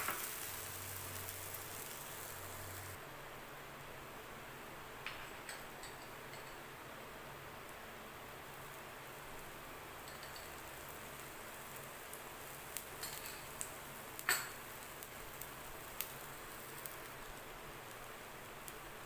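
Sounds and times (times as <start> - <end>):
batter sizzling in oil: 0.0 - 3.0, 5.1 - 19.0
crackling pops: 0.0 - 3.0, 11.2 - 18.9.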